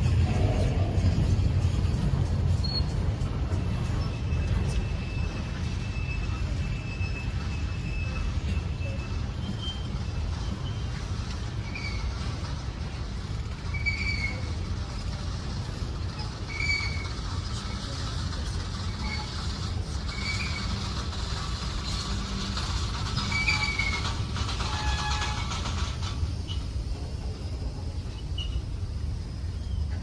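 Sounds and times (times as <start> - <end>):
train rumbling past: 0.0 - 30.0.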